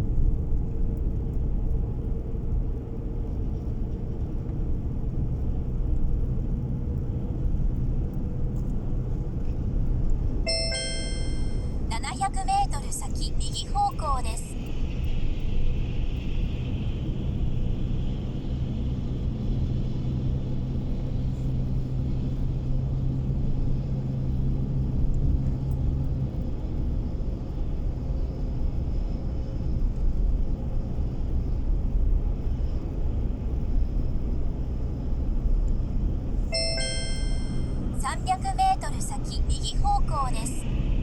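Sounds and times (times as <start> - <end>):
short electronic chime: 10.5 - 11.9, 36.5 - 38.4.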